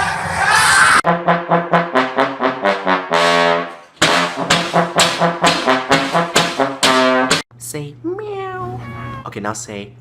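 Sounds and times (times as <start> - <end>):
brass instrument playing a tune: 1.1 - 7.4.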